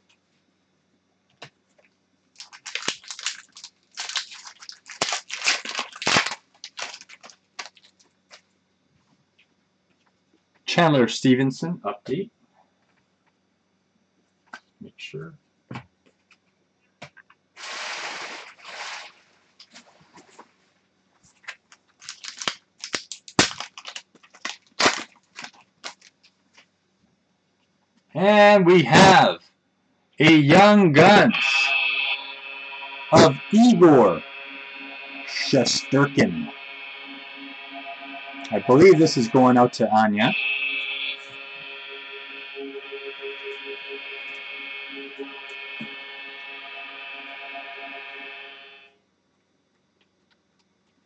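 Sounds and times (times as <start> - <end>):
trading cards snapping and rustling: 2.4 - 8.0, 21.4 - 26.3
foil wrapper crinkling: 2.4 - 8.4, 21.4 - 26.3.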